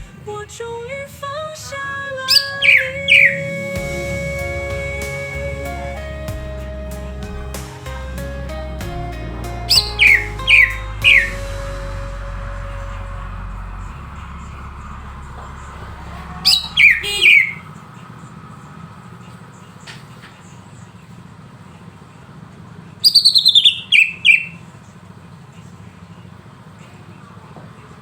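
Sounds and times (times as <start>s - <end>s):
bird whistling song: 2.3s - 12.1s, 15.4s - 17.7s, 23.0s - 24.6s.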